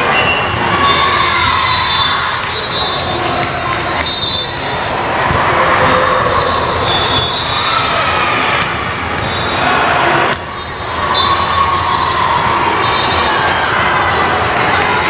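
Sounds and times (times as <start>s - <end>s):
crowd voices and shouting: 0.0s - 15.0s.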